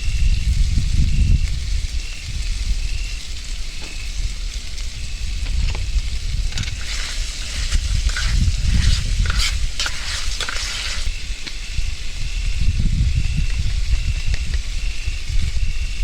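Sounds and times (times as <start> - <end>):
food sizzling in a pan: 0.0 - 13.2
stirring and scraping in a pan: 6.4 - 11.2.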